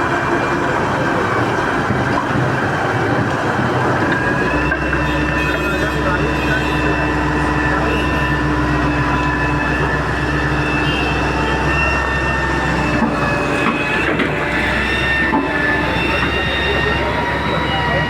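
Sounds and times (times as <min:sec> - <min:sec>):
excavator engine and hydraulics: 0:00.0 - 0:18.0.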